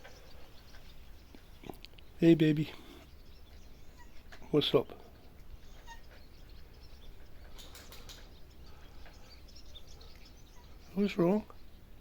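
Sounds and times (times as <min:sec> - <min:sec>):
small birds chirping faintly: 0:00.0 - 0:12.0.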